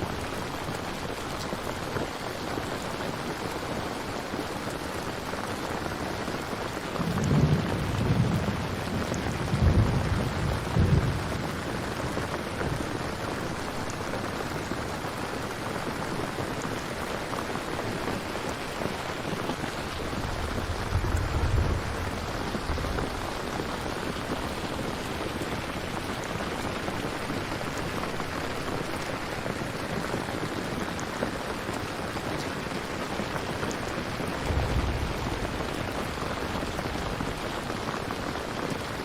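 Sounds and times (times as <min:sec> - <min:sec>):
steady rain falling: 0:00.0 - 0:39.0
thunder rumbling: 0:06.8 - 0:13.8, 0:18.1 - 0:26.4, 0:33.7 - 0:39.0.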